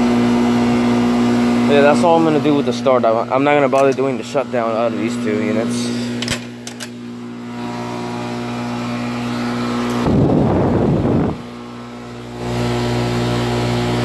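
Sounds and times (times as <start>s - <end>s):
air conditioner units humming: 0.0s - 14.0s
loud rough rumble: 9.9s - 11.8s.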